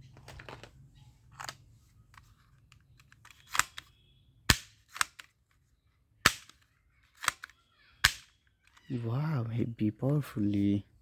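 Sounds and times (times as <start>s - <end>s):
toy gun shots: 4.5s - 5.3s, 6.2s - 8.4s.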